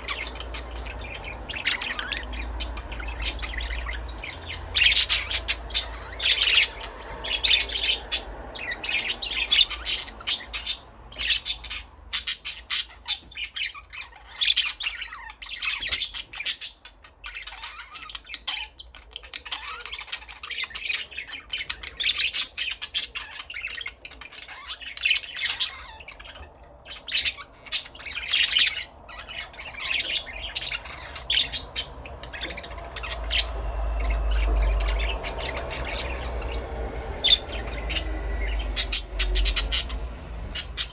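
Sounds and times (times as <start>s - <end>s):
budgerigars chattering: 0.0s - 40.9s
low rumble: 28.8s - 40.9s.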